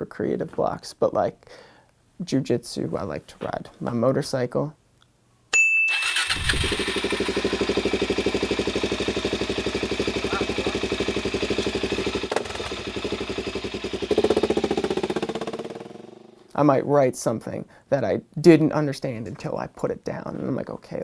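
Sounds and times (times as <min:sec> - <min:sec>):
motorcycle engine idling: 0:06.1 - 0:16.5.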